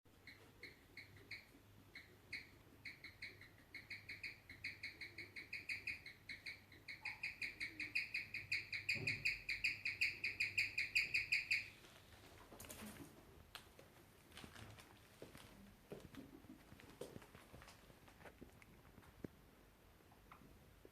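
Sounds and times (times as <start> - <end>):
guinea pig chirping: 0.1 - 11.8.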